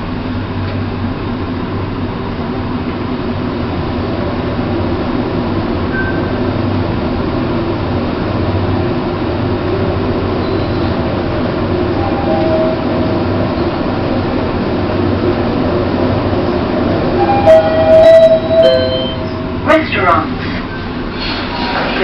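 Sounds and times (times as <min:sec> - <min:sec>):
low mechanical rumble and hum: 0:00.0 - 0:22.0
faint high tone: 0:17.2 - 0:19.6.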